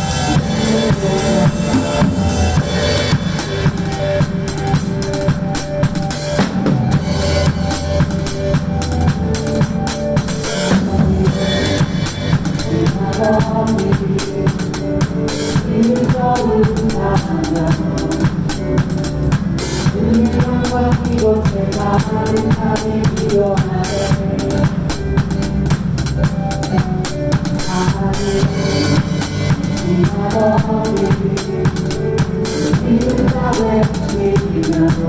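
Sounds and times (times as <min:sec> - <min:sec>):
drum kit playing: 0:00.0 - 0:35.0
worship song backing instruments: 0:00.0 - 0:35.0.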